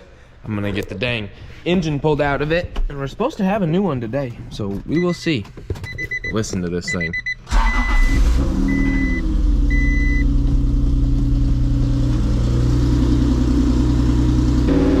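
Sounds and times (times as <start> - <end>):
car warning chime beeps: 5.9 - 10.3.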